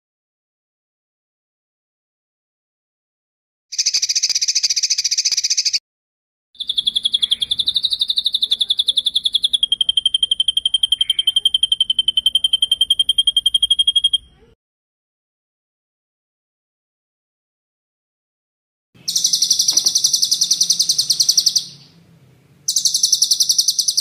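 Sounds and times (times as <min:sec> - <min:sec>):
bird fast rolling trill: 0:03.7 - 0:05.8, 0:06.6 - 0:14.4, 0:19.0 - 0:24.0
bird buzzy rattle: 0:19.0 - 0:21.9.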